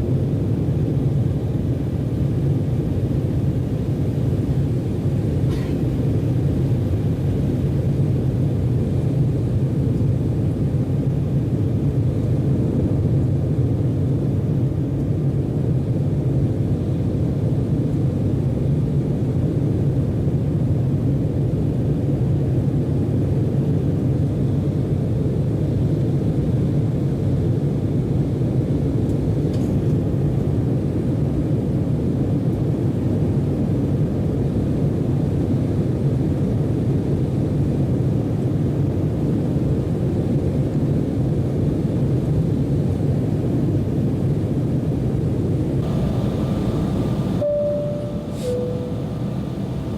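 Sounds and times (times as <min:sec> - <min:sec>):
jet engines rumbling in cabin: 0:45.8 - 0:49.9.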